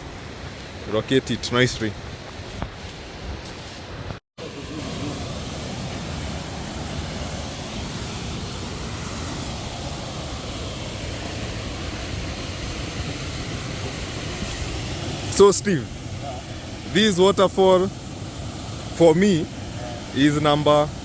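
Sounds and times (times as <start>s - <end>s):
waterfall rushing: 4.4s - 21.0s.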